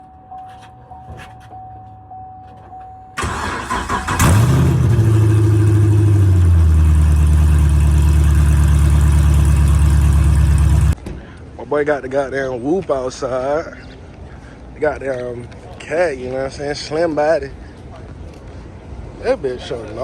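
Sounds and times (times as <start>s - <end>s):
car engine starting and idling: 3.2s - 11.0s.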